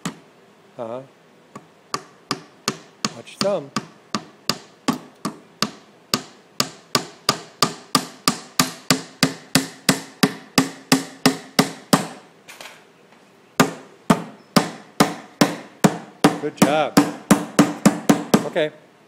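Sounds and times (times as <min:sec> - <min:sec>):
hammer driving nail into wood: 0:01.9 - 0:12.2, 0:13.6 - 0:18.5.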